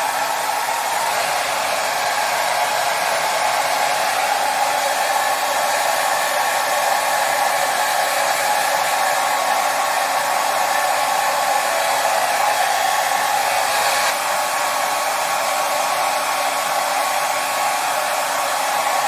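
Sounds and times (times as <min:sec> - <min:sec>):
hair dryer running: 0:00.0 - 0:19.0.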